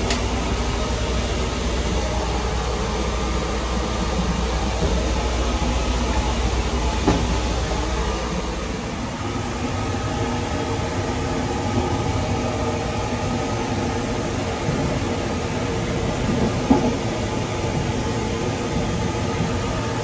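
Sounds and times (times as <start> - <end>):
train rumble and hiss: 0.0 - 20.0.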